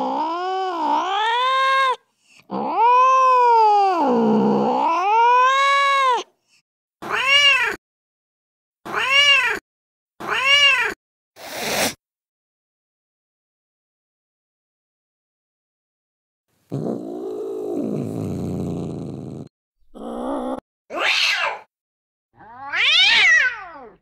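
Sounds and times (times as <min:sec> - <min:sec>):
angry cat caterwauling: 0:00.0 - 0:06.3, 0:07.0 - 0:07.8, 0:08.9 - 0:09.6, 0:10.2 - 0:11.0, 0:19.9 - 0:21.7, 0:22.4 - 0:24.0
cat meowing: 0:00.0 - 0:06.3, 0:07.0 - 0:07.8, 0:08.9 - 0:09.6, 0:10.2 - 0:11.0, 0:20.0 - 0:21.7, 0:22.4 - 0:24.0.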